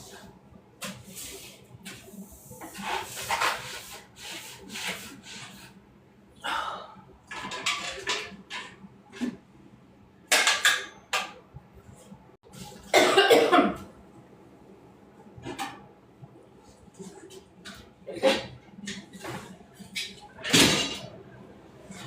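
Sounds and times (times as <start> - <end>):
rubbing and scrubbing strokes: 0.8 - 5.8.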